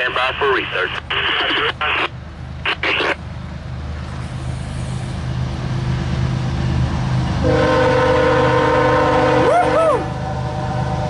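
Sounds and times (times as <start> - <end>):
locomotive engine rumble: 0.0 - 11.0
locomotive horn chord: 7.4 - 11.0.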